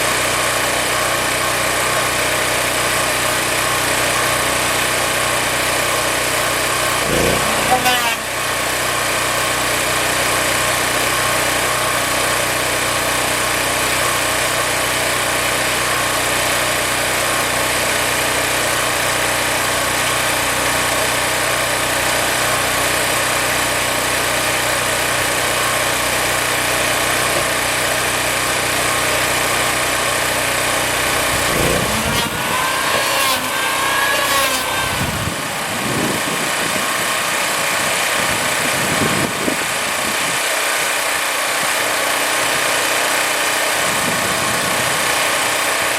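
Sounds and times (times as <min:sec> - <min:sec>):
woodworking machine motor whirring: 0:02.0 - 0:11.0, 0:15.8 - 0:40.0.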